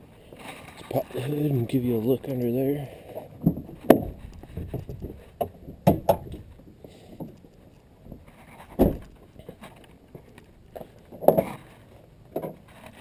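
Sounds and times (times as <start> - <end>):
car hood knocks and clunks: 8.8 - 9.2.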